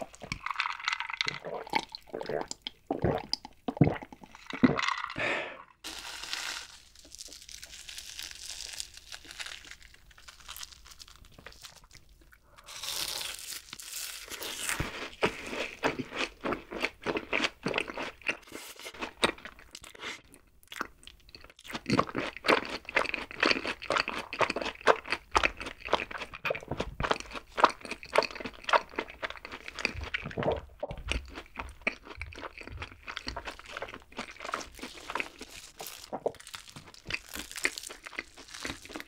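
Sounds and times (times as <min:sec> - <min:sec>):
crisp bite: 0:05.8 - 0:16.0, 0:33.2 - 0:39.0
crunchy chewing: 0:05.8 - 0:39.0.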